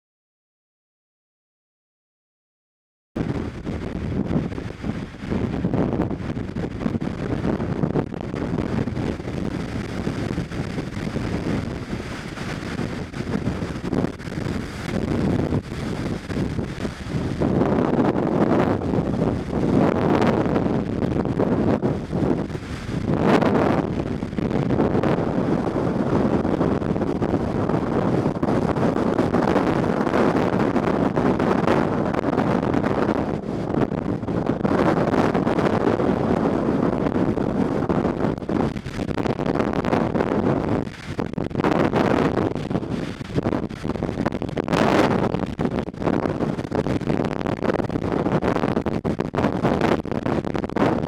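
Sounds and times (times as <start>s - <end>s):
gusty wind buffeting microphone: 3.2s - 51.0s.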